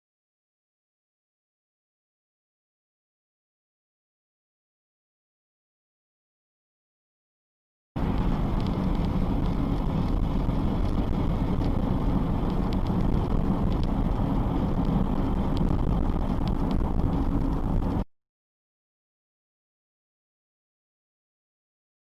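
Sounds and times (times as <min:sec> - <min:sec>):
vehicle engine and road noise: 0:08.0 - 0:18.1.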